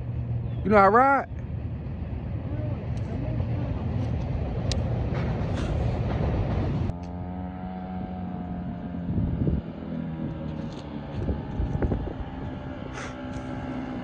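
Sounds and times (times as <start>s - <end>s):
wind buffeting microphone: 0.0s - 14.0s
dirt bike engine running: 6.5s - 14.0s.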